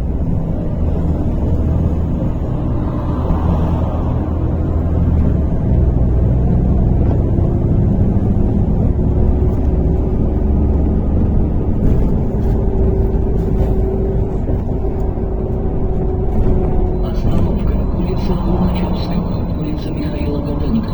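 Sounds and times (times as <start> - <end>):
bus engine and road rumble: 0.0 - 20.9
faint whine: 15.0 - 20.9.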